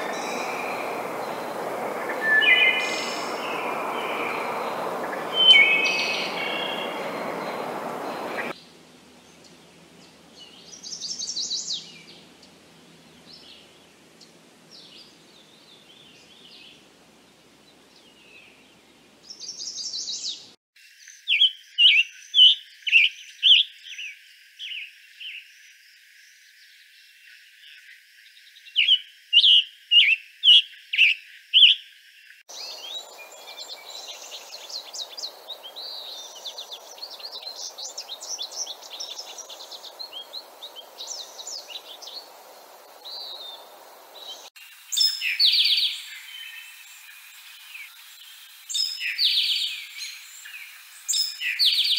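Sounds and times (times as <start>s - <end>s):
rapid rambling bird twittering: 0.0s - 8.5s
loud clear repeated bird notes: 0.0s - 8.6s
bird song: 0.0s - 51.9s.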